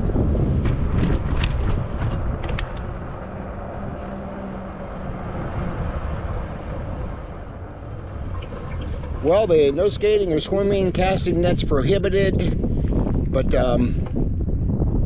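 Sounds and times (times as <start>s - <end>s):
wind and tyre rumble: 0.0s - 15.0s
light clicks and rattles: 0.6s - 2.9s.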